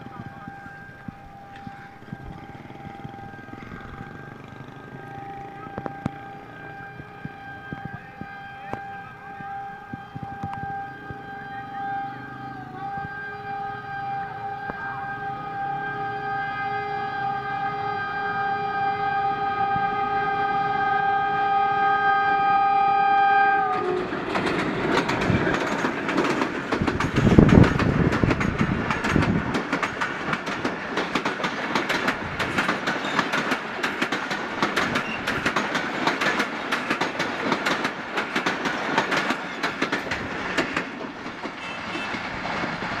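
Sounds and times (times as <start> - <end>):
wheels clickety-clack: 0.0 - 11.2, 23.7 - 43.0
locomotive horn: 0.0 - 25.6, 41.5 - 43.0
train passing: 0.0 - 43.0.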